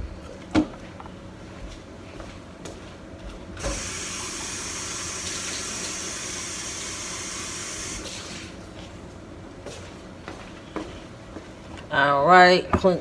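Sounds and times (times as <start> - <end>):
water running into sink: 3.6 - 8.5.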